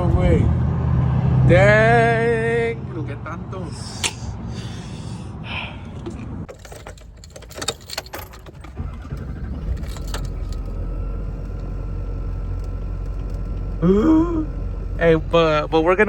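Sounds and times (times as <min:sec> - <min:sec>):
car engine low rumble: 0:00.0 - 0:16.0
clicks and rattles: 0:06.0 - 0:10.8.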